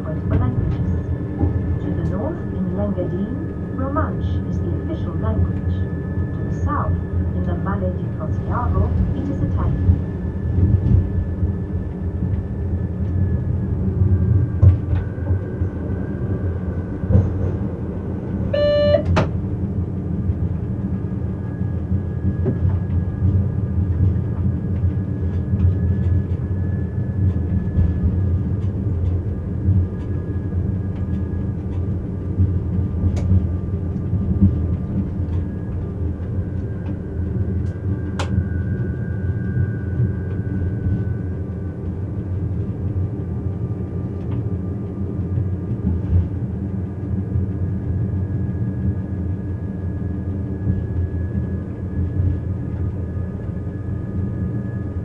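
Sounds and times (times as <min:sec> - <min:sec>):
electric railcar rumbling with whine: 0:00.0 - 0:55.0
short tone: 0:18.5 - 0:19.2.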